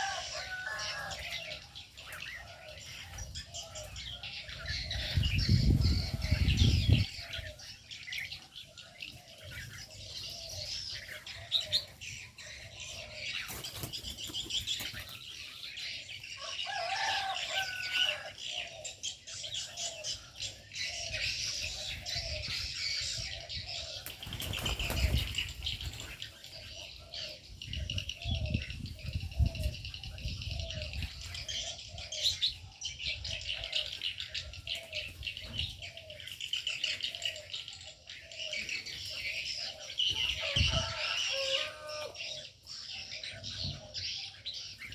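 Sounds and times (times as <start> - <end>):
birds chirping and calling: 0.0 - 44.9
wings flapping: 24.0 - 26.2.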